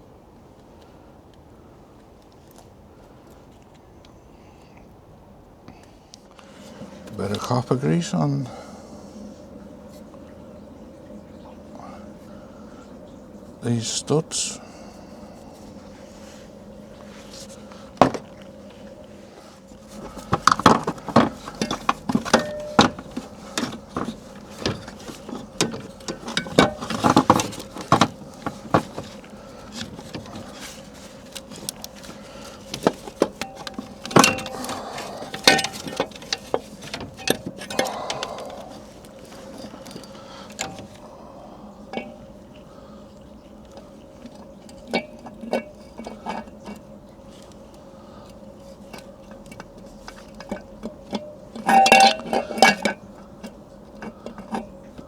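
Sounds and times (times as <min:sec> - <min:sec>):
metallic clinks and knocks: 0:20.0 - 0:41.0, 0:41.8 - 0:42.3, 0:48.9 - 0:55.0.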